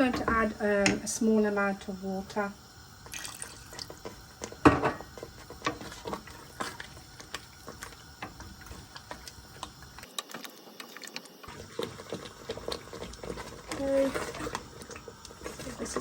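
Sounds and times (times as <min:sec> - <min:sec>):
spoon stirring sauce in pan: 0:03.8 - 0:10.0, 0:11.5 - 0:16.0.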